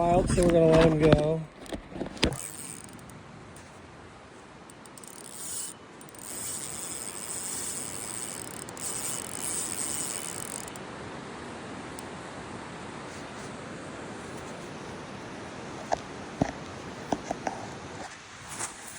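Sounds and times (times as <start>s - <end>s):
fishing reel ratcheting whir: 1.6s - 3.2s, 4.7s - 10.8s
river water rushing: 2.1s - 18.9s.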